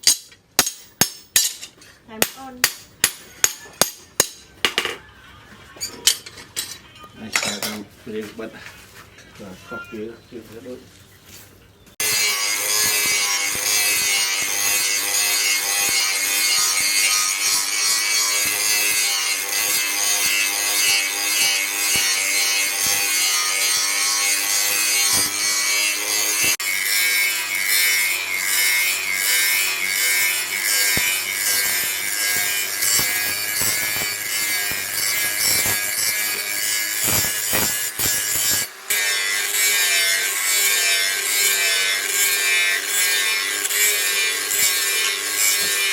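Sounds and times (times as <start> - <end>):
tool grinding abrasively: 12.0 - 45.9.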